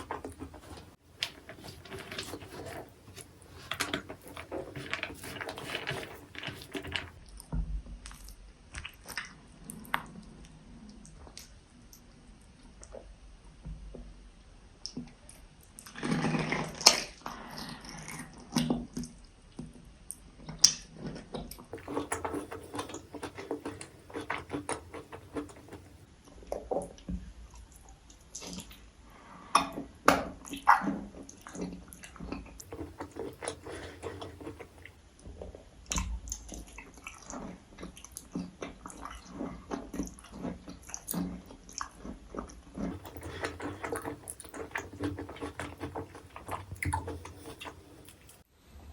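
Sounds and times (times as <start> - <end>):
person chewing food: 0.0 - 7.2, 21.8 - 26.1, 32.6 - 35.0, 42.8 - 48.4
wet mouth clicks: 42.9 - 48.4.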